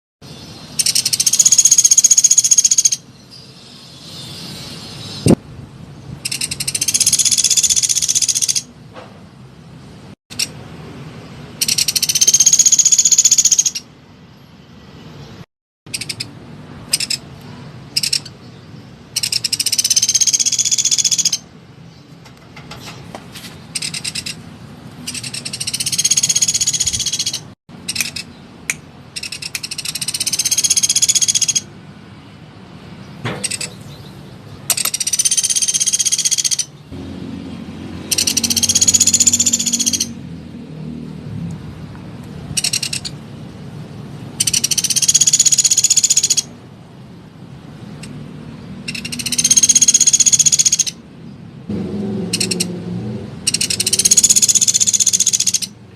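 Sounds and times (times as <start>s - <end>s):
woodpecker trills: 0.8s - 3.0s, 6.2s - 8.7s, 11.6s - 13.9s, 15.9s - 17.3s, 17.9s - 18.3s, 19.1s - 21.5s, 23.8s - 24.4s, 25.1s - 28.3s, 29.2s - 31.7s, 34.7s - 36.8s, 38.1s - 40.2s, 42.6s - 43.2s, 44.4s - 46.5s, 48.8s - 51.0s, 52.3s - 52.7s, 53.5s - 55.8s.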